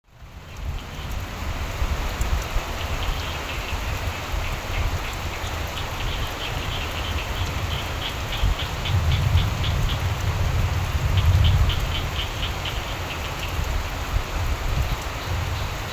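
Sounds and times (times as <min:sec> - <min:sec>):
steady rain: 0:00.0 - 0:15.9
frogs croaking: 0:02.7 - 0:13.9.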